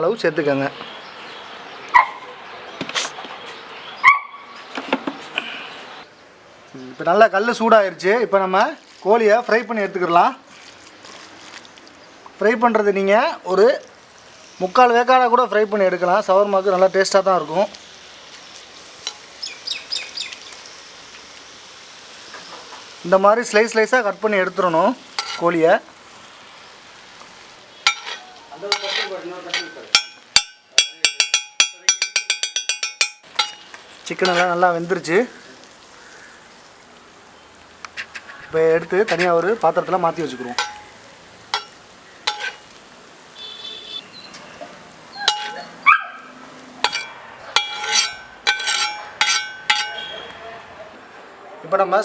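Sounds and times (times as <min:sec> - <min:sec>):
chicken sizzling on a griddle: 0:13.0 - 0:31.3, 0:33.2 - 0:50.3
metal utensils clinking and scraping: 0:18.8 - 0:19.3, 0:25.1 - 0:25.6, 0:27.8 - 0:34.7, 0:40.2 - 0:42.8, 0:44.6 - 0:45.8, 0:46.8 - 0:50.3
metal spatula clanging on griddle: 0:19.0 - 0:19.4, 0:25.1 - 0:25.6, 0:27.8 - 0:34.6, 0:40.4 - 0:42.8, 0:45.2 - 0:45.8, 0:46.8 - 0:50.4.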